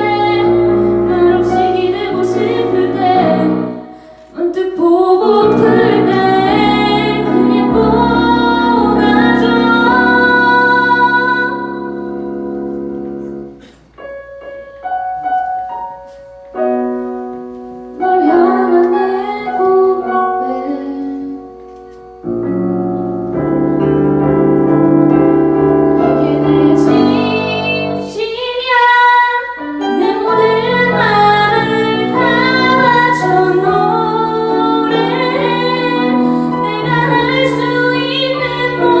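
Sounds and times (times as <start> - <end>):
woman singing: 0.0 - 12.2, 18.0 - 21.5, 26.0 - 39.0
piano accompaniment: 0.0 - 39.0.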